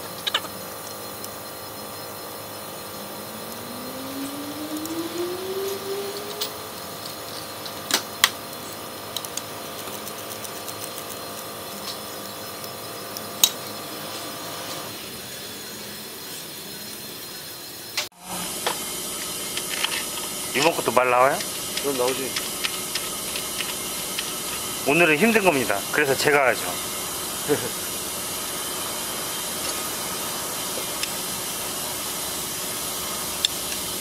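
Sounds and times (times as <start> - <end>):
workshop hum: 0.0 - 17.2, 17.9 - 34.0
low hum rising in pitch: 2.1 - 7.8.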